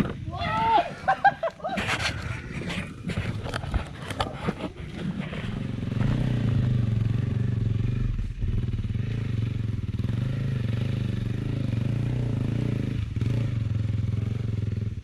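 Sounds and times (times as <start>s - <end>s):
clattering and scraping: 1.6s - 6.2s
dirt bike engine running: 4.8s - 15.0s.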